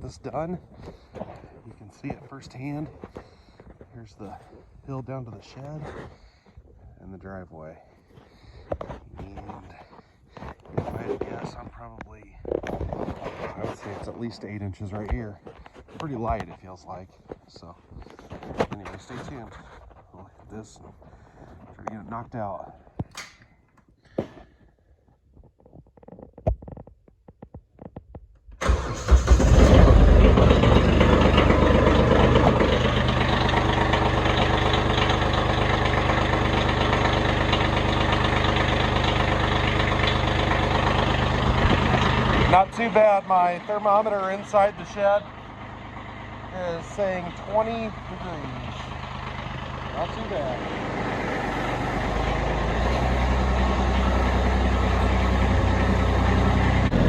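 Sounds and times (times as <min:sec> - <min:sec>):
diesel tractor engine starting and idling: 0:23.1 - 0:23.9, 0:28.6 - 0:57.0.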